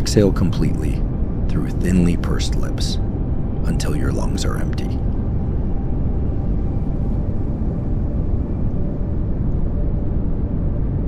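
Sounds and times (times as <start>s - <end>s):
pink noise hiss: 0.0s - 3.0s.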